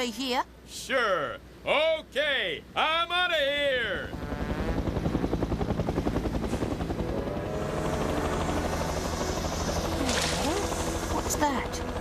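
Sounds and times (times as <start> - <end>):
cartoon helicopter rotor chop: 3.6 - 12.0
background music: 6.8 - 12.0.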